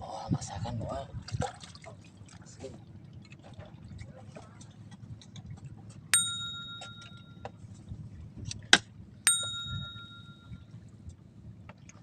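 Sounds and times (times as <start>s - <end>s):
small metal bell ringing: 6.2s - 7.4s, 9.3s - 10.6s.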